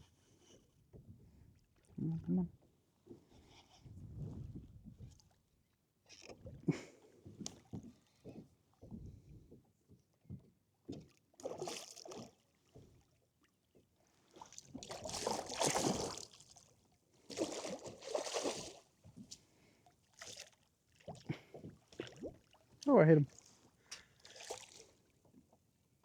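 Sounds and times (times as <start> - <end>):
water splashing around kayak: 10.8 - 25.6.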